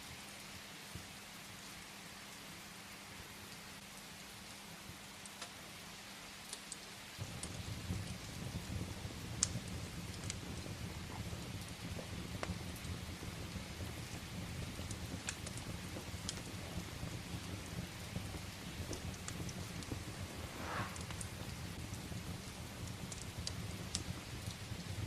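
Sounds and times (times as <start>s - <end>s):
rain hissing against a window: 0.0s - 25.0s
firewood crackling: 3.5s - 25.0s
low rumble: 18.8s - 22.6s.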